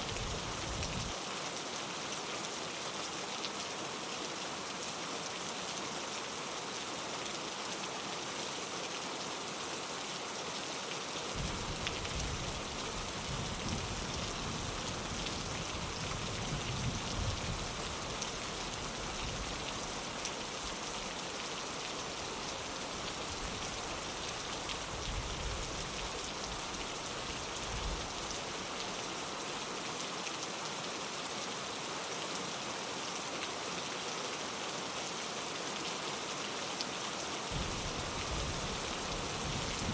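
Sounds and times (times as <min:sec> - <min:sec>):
rain on a windowpane: 0:00.0 - 0:39.9
low rumble of thunder: 0:11.4 - 0:12.5, 0:37.6 - 0:38.8.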